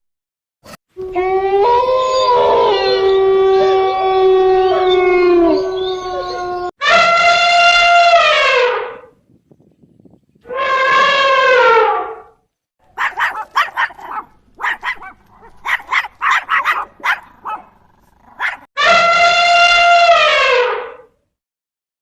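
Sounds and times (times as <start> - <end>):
dog howling: 1.0 - 6.7, 13.0 - 17.7, 18.3 - 18.7
dog barking and yelping: 12.9 - 18.7.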